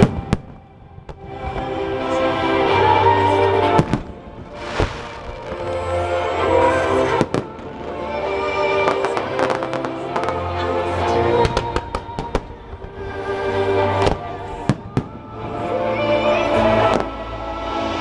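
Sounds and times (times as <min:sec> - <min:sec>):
fireworks bursting and crackling: 0:00.0 - 0:01.8, 0:02.8 - 0:13.1, 0:13.8 - 0:15.4
music through loudspeakers: 0:00.0 - 0:18.0.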